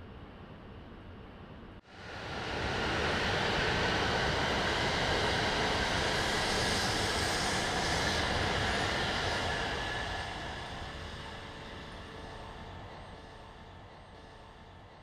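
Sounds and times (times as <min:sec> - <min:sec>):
high-speed train passing: 0:01.9 - 0:13.3.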